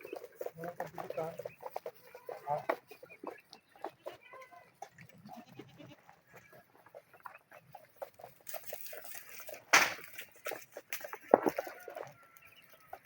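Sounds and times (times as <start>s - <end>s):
chickens clucking and peeping: 0.0s - 13.0s
goat calling: 1.8s - 10.2s.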